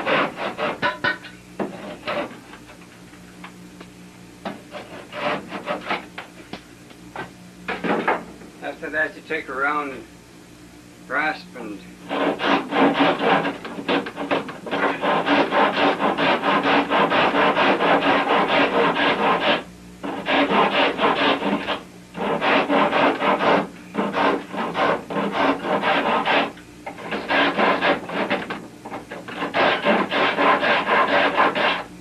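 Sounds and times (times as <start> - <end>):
rasp scraping wood: 0.0 - 2.8, 4.5 - 6.1, 12.0 - 31.9.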